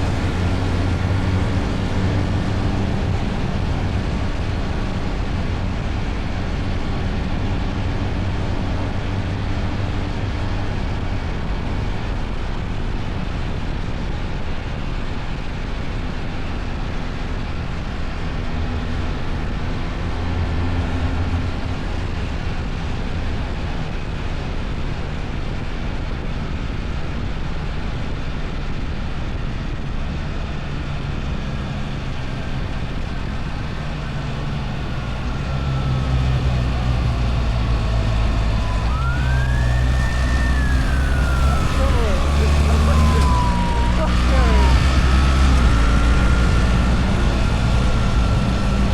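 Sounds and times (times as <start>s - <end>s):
motorcycle engine running: 0.0s - 12.8s, 30.0s - 48.9s
wind and road noise: 0.0s - 48.9s.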